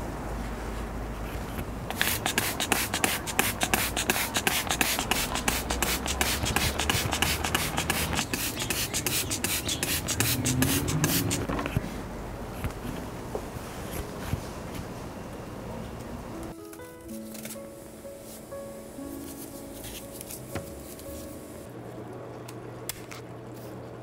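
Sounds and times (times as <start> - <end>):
rhythmic rasping strokes: 1.9 - 11.5.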